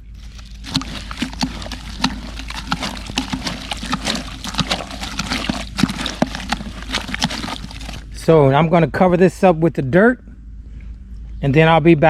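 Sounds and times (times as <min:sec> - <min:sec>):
stick squelching wet ash: 0:00.2 - 0:08.0.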